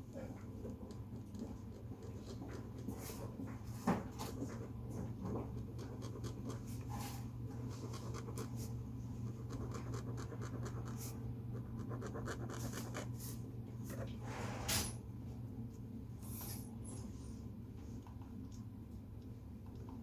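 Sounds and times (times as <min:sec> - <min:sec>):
drawing tool scratching on paper: 0:09.3 - 0:13.1.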